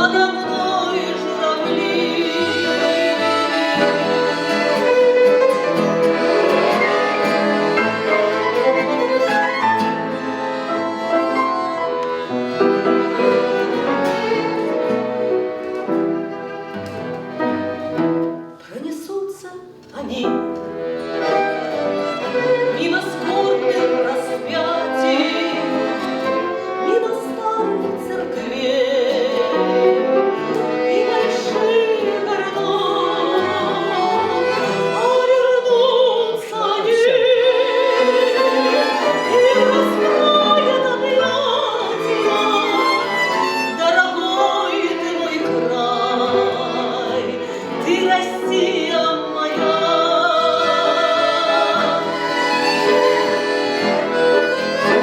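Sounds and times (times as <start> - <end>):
violin melody with vibrato: 0.0 - 18.4, 20.6 - 55.0
string accompaniment: 0.0 - 55.0.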